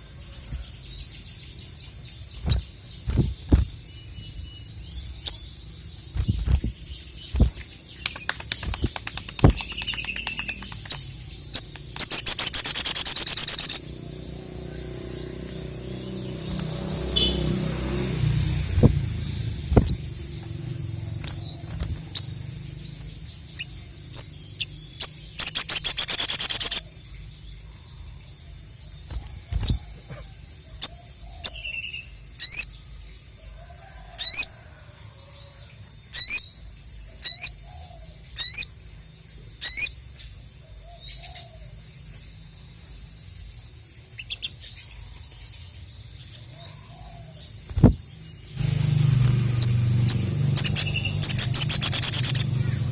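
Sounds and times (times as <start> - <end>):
sharp repeated bird calls: 0.0 - 28.1, 28.8 - 32.7, 36.1 - 38.8, 44.1 - 45.6, 46.4 - 52.9
songbird singing: 0.0 - 52.9
bird rattling trill: 6.1 - 13.8, 25.4 - 26.9, 48.6 - 52.6.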